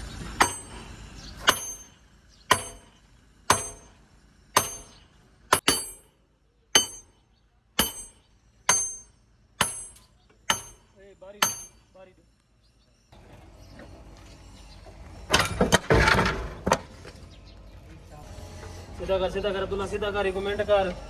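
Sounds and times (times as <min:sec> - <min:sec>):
hammer blows on steel: 0:06.8 - 0:07.2, 0:07.8 - 0:11.8.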